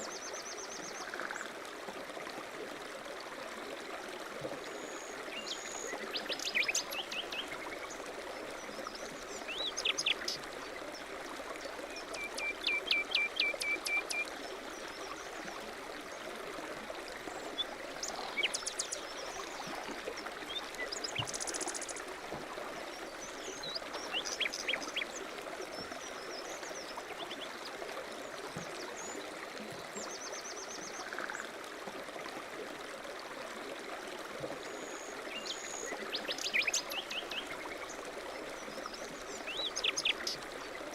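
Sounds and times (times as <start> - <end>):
stream running: 0.0 - 40.9
songbirds calling: 38.6 - 40.4.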